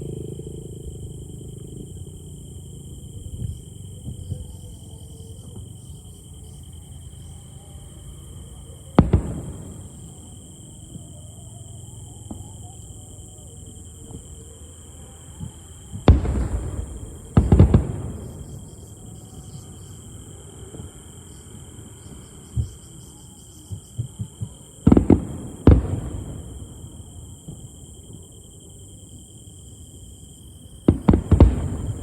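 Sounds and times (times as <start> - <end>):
firework shells booming: 9.0 - 11.0, 15.9 - 19.8, 24.0 - 28.4, 30.8 - 32.0.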